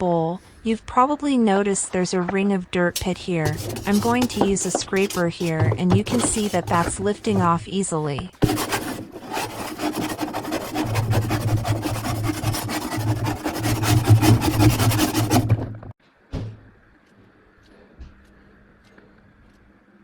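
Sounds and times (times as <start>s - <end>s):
scraper rasping on plastic: 3.0s - 15.8s.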